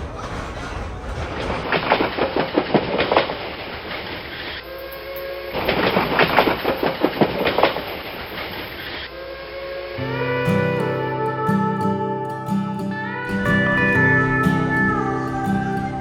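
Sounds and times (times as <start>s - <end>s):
train wheels clattering over rails: 0.0s - 4.6s
steady pitched tone: 9.2s - 16.0s
slide guitar music: 9.9s - 16.0s.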